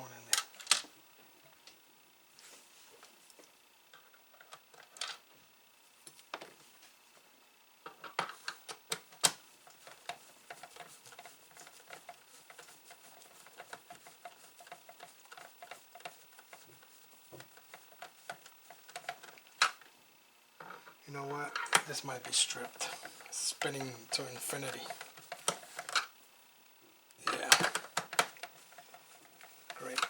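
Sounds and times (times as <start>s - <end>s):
rapid ticking of turning screw: 9.7s - 19.8s.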